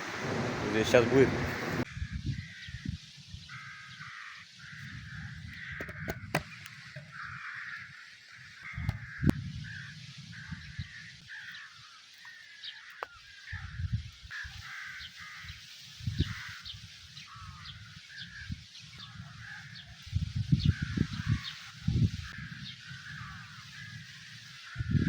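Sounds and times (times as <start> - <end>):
low rumbling: 0.0 - 1.8
birds chirping: 0.0 - 25.0
crows cawing: 0.6 - 20.1, 20.7 - 25.0.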